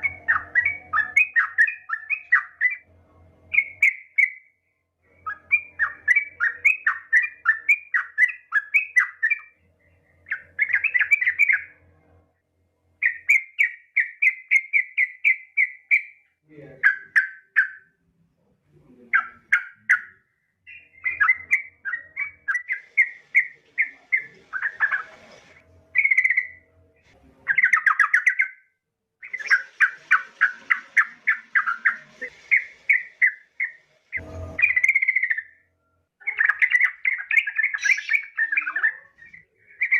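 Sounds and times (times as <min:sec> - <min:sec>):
bird chattering calls: 0:29.2 - 0:33.8, 0:36.3 - 0:39.2.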